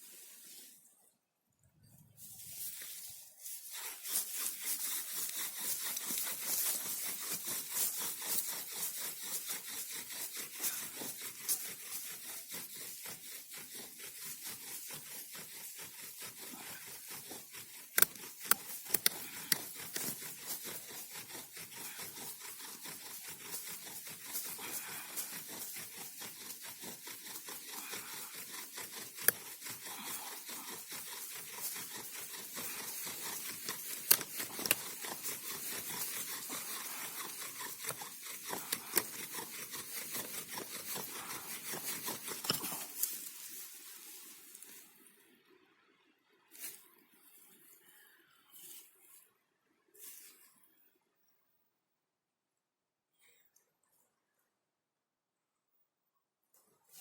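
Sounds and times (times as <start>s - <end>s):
bow drill rubbing on wood: 2.6s - 44.8s
sharp clicks: 17.9s - 20.2s.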